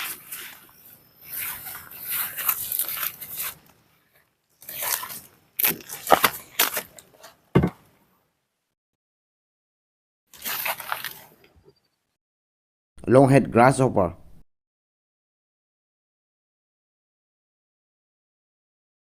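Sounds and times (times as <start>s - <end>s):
rustling handling noise: 0.0s - 7.4s, 10.3s - 11.5s
sharp knocks: 7.6s - 7.8s.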